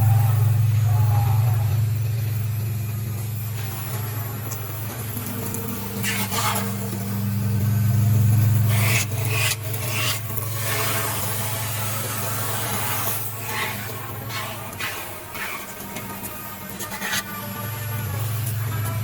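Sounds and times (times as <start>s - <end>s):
machine hum: 0.0s - 19.0s
cutter rasping through foam: 5.2s - 7.1s, 8.5s - 18.9s.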